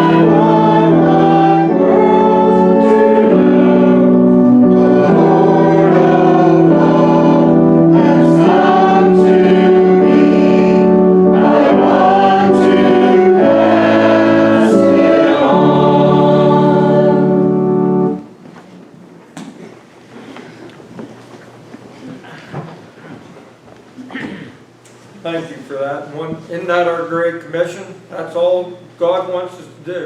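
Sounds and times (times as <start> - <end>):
congregation singing a hymn: 0.0 - 18.3
instrumental accompaniment: 0.0 - 18.4.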